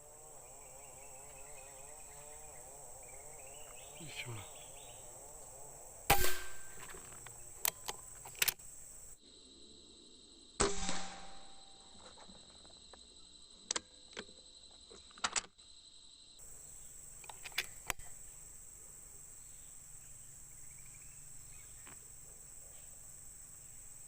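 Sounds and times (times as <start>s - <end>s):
air rifle shot: 6.1s - 7.0s, 10.6s - 11.7s
sharp clicks: 6.1s - 8.6s, 17.2s - 18.1s.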